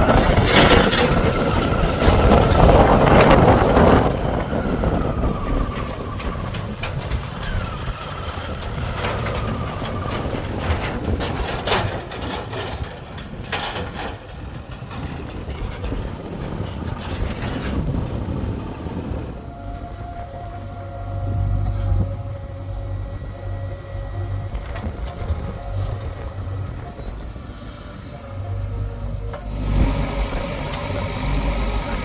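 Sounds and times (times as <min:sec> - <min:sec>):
backhoe diesel engine running: 0:00.0 - 0:32.0
faint wavering whine: 0:19.0 - 0:32.0.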